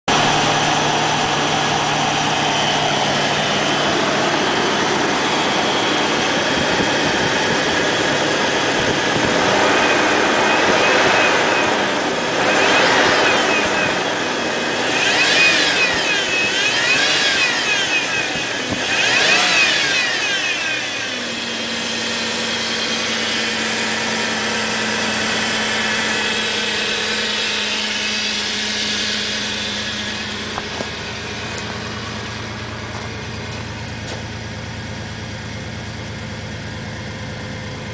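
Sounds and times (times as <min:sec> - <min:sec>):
engine idling and revving: 0:00.0 - 0:37.9.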